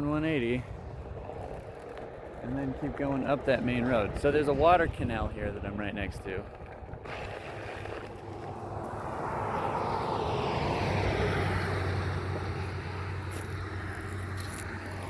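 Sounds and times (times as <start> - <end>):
vehicle passing by: 7.1 - 15.0.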